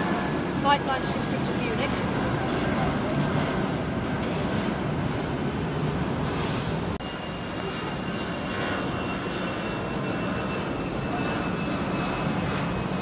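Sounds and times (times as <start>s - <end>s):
faint high engine whine: 0.0s - 13.0s
jet engines rumbling: 0.0s - 13.0s.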